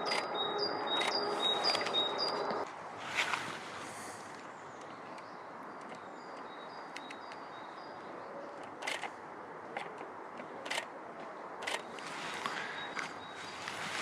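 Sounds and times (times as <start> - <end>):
outdoor ambience: 0.0 - 14.0
sharp clicks: 4.8 - 7.4, 8.6 - 9.1, 9.8 - 10.9, 11.6 - 12.1.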